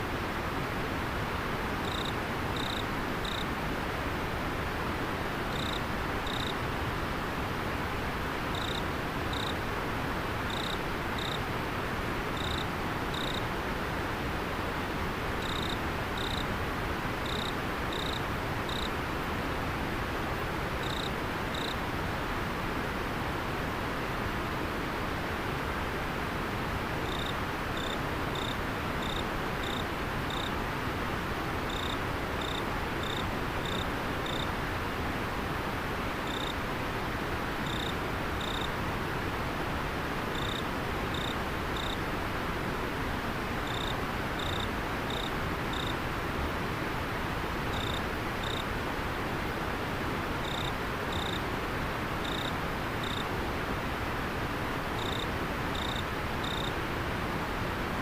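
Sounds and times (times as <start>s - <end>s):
cricket chirping: 1.8s - 3.5s, 5.5s - 6.6s, 8.5s - 9.6s, 10.5s - 11.4s, 12.4s - 13.4s, 15.4s - 16.5s, 17.2s - 18.9s, 20.8s - 21.8s, 27.0s - 30.5s, 31.7s - 34.5s, 36.3s - 36.6s, 37.6s - 38.7s, 40.3s - 42.0s, 43.6s - 45.9s, 47.7s - 48.6s, 50.4s - 51.4s, 52.2s - 53.3s, 55.0s - 56.7s.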